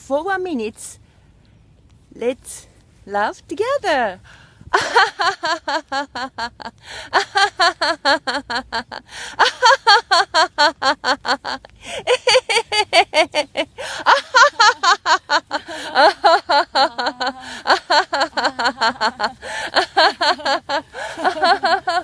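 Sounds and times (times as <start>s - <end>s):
women laughing loudly: 4.7s - 22.0s.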